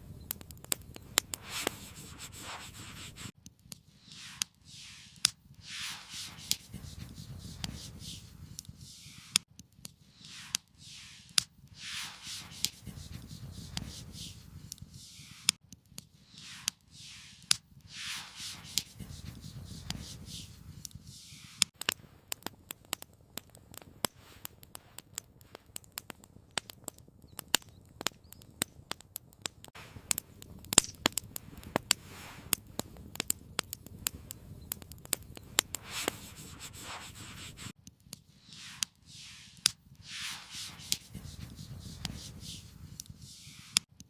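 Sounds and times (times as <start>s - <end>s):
campfire crackling and popping: 0.0s - 44.0s
rustling: 35.2s - 37.7s, 38.3s - 43.8s.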